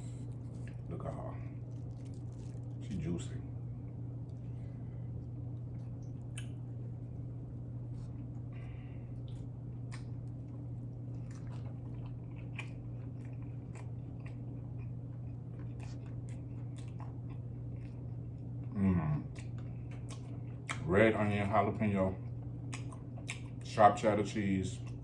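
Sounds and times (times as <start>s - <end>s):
steady low hum: 0.0s - 25.0s
wet smacks and clicks: 5.8s - 6.6s, 9.2s - 10.4s, 19.3s - 20.9s, 22.7s - 23.7s
mouth chewing: 9.2s - 20.9s, 22.6s - 23.7s.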